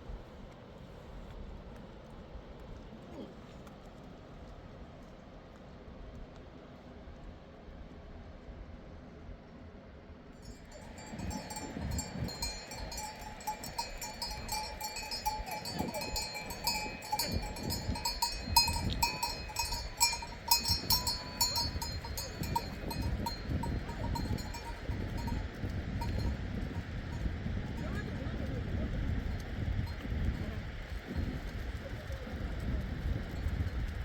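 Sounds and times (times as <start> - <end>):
livestock bells clinking: 10.4 - 27.8.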